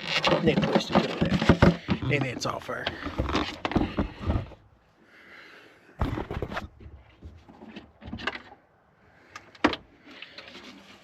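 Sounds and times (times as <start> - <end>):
plastic clicks and scrapes: 0.0 - 4.6
plastic handling rustle: 0.0 - 4.6.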